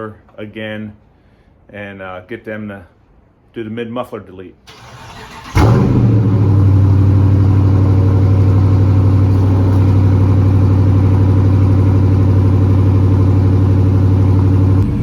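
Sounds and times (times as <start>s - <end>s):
car engine starting and idling: 4.7s - 15.0s.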